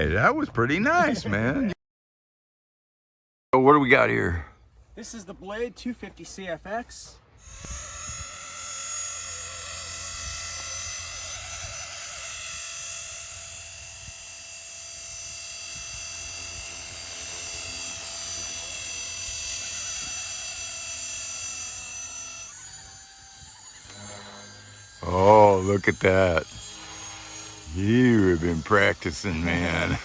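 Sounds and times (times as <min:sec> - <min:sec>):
model helicopter motor whine: 0:07.4 - 0:30.0.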